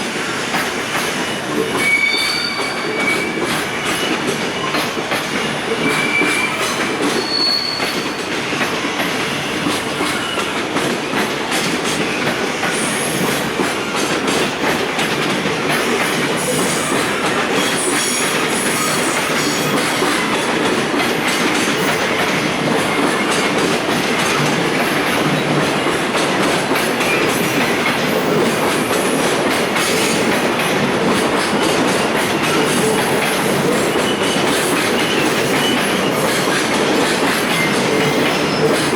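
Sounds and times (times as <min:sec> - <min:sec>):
freight train wheels rumbling: 0:00.0 - 0:38.9
wheels squealing: 0:05.8 - 0:08.1.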